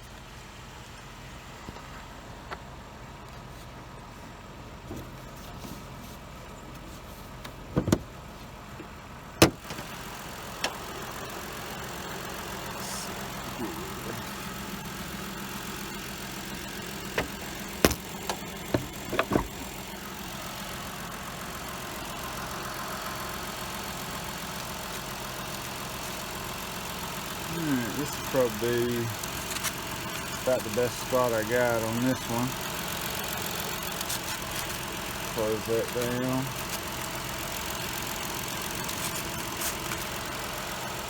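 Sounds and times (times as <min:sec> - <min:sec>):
car engine idling: 0:00.0 - 0:41.0
clicks and knocks in engine bay: 0:17.1 - 0:19.8.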